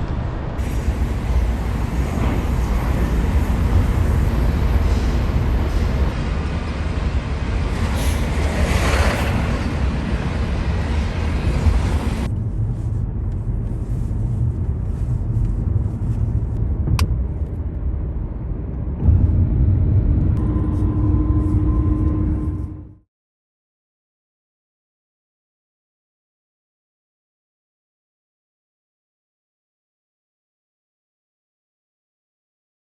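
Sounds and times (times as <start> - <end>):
vehicle low rumble: 0.0 - 23.0.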